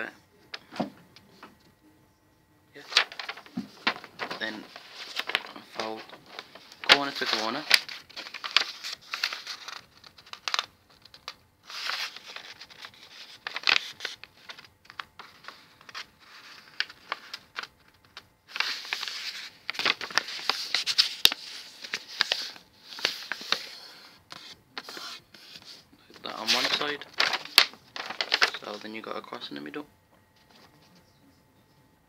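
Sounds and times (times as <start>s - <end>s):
paper crackling: 2.8s - 29.5s
paper rustling and crinkling: 2.8s - 29.5s, 30.3s - 31.0s.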